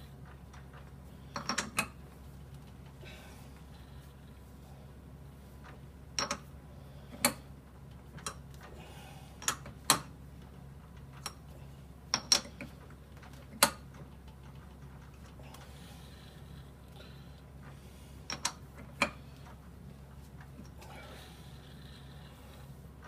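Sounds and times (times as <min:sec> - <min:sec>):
metallic clicks and knocks: 0:06.2 - 0:06.4.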